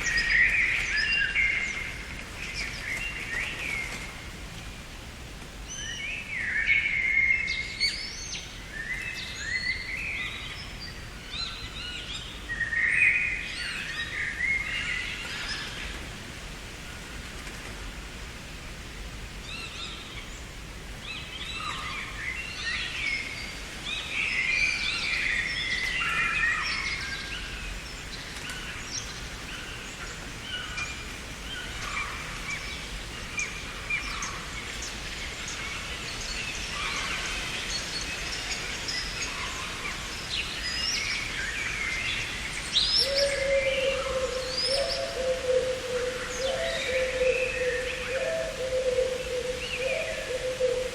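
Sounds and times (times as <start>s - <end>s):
background hiss: 0.0s - 50.9s
songbirds chirping and singing: 19.5s - 50.9s.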